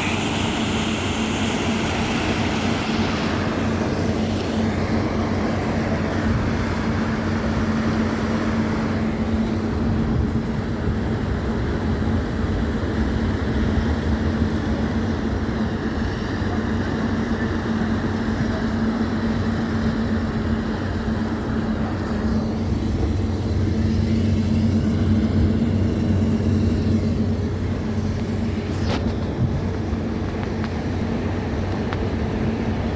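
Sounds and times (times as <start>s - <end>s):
ship engine droning: 0.0s - 32.9s
steady rushing noise: 0.0s - 32.9s.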